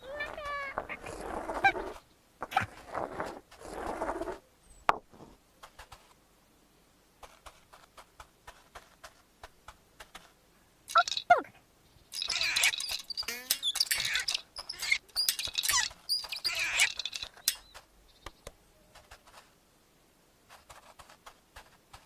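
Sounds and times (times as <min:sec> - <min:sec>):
cartoon squeaky sound effects: 0:10.9 - 0:11.5, 0:12.2 - 0:17.2.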